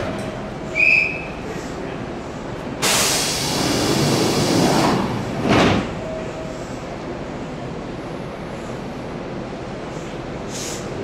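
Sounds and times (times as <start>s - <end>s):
loud hissing rush: 1.4s - 4.8s.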